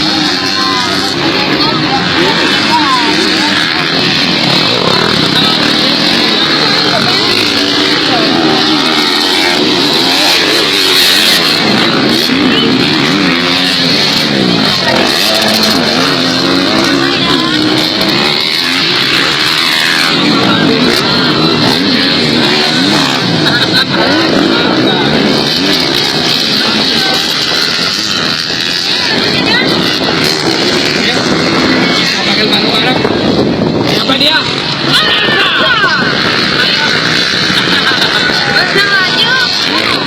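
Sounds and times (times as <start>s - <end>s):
motocross bike engines revving: 0.0s - 40.0s.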